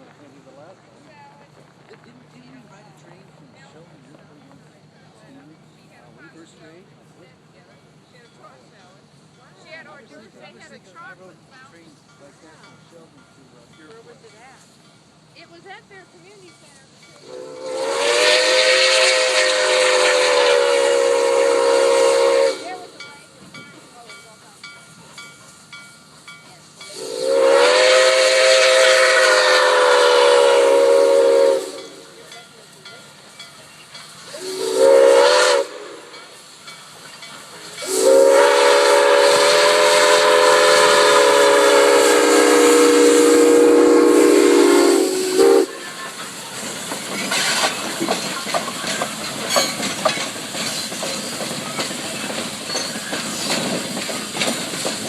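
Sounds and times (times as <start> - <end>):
train rattling past: 0.0 - 55.0
train wheels clicking: 0.0 - 55.0
steam locomotive chime whistle: 16.3 - 46.4, 49.5 - 50.0, 52.6 - 53.5.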